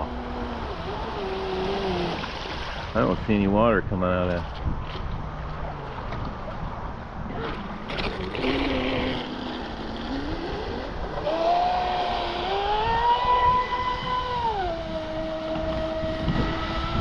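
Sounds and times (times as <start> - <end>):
model boat motor whining: 0.0 - 2.9, 7.3 - 17.0.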